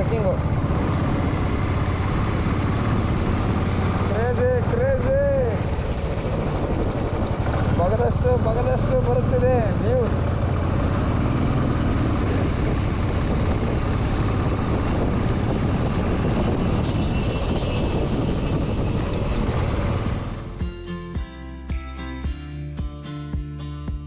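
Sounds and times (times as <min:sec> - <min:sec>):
wind rush and motorcycle engine: 0:00.0 - 0:20.6
plucked guitar music: 0:19.6 - 0:24.0.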